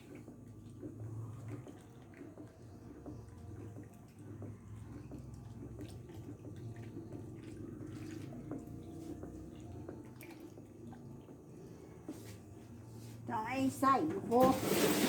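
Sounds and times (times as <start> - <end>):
liquid sloshing and dripping: 0.0 - 15.0.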